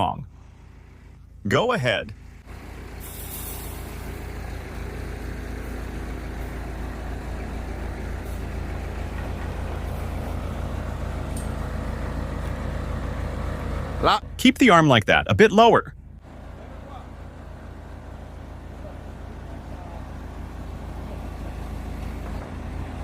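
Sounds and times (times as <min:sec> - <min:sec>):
diesel engine running: 0:00.0 - 0:23.0
hydraulic hiss: 0:03.0 - 0:04.2.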